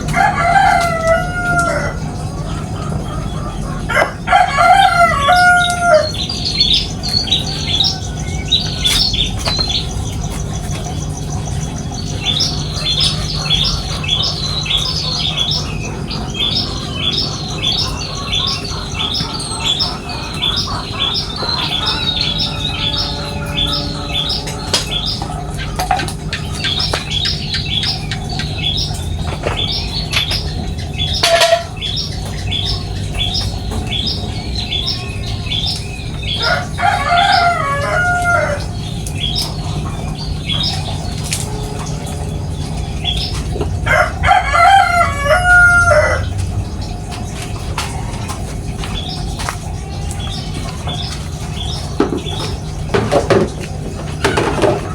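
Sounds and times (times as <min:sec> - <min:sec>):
rooster crowing: 0:00.0 - 0:02.2, 0:03.8 - 0:06.7, 0:15.6 - 0:26.0, 0:36.3 - 0:38.9, 0:43.8 - 0:46.4
small birds chirping: 0:00.0 - 0:54.9.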